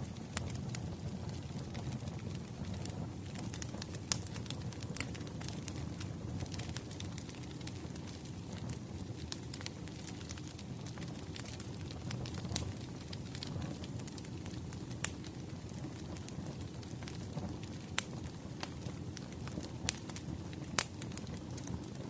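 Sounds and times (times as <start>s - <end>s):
fire pops and snaps: 0.0s - 22.0s
wood fire crackling: 0.0s - 22.0s.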